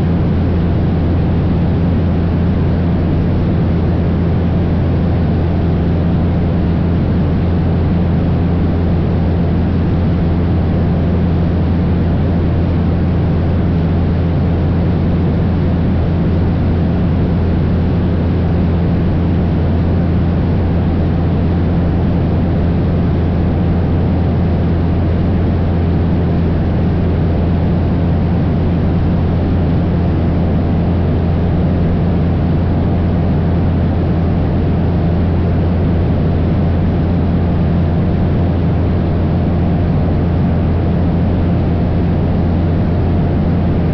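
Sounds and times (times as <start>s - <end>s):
small plane engine droning: 0.0s - 43.9s.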